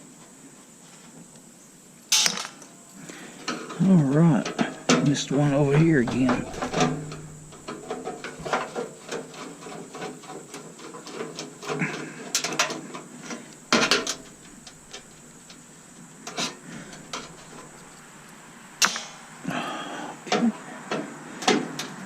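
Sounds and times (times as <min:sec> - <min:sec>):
loud metal knocks: 0:04.9 - 0:08.9, 0:13.6 - 0:15.7, 0:16.7 - 0:18.0
metal tools clicking and scraping: 0:12.4 - 0:15.7, 0:16.3 - 0:19.3.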